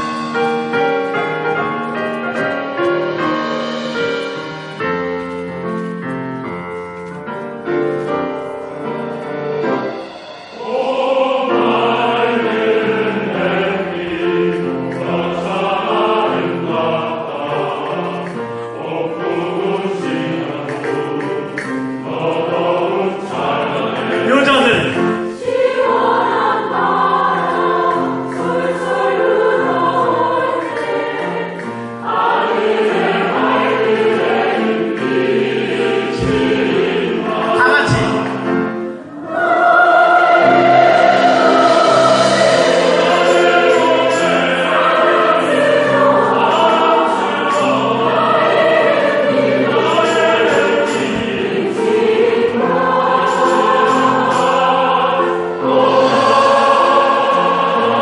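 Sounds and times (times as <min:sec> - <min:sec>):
choir singing: 0:00.0 - 0:58.0
instrumental accompaniment: 0:00.0 - 0:58.0.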